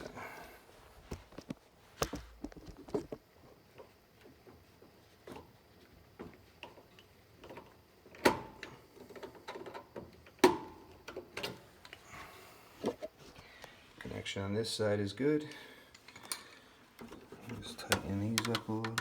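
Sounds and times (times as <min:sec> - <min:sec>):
small metal parts clicking: 0:18.3 - 0:19.0.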